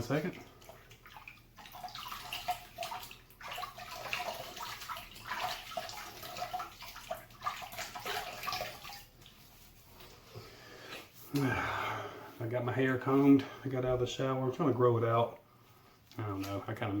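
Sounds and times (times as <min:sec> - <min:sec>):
water splashing on face: 0:00.0 - 0:09.4.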